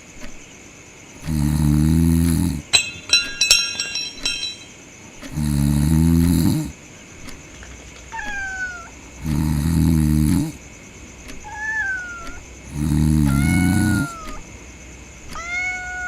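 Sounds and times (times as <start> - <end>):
person snoring: 1.2 - 2.7, 5.3 - 6.8, 9.2 - 10.6, 12.7 - 14.2
cat meowing: 8.1 - 8.9, 11.4 - 12.4, 13.2 - 14.4, 15.4 - 16.0.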